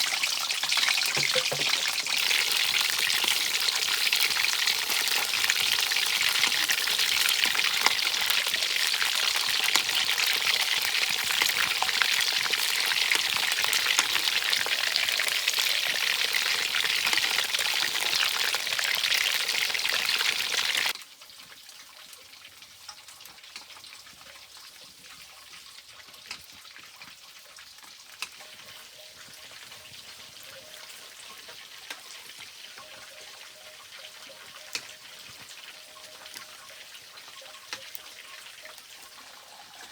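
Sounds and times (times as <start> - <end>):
fish frying in hot oil: 0.0 - 39.9.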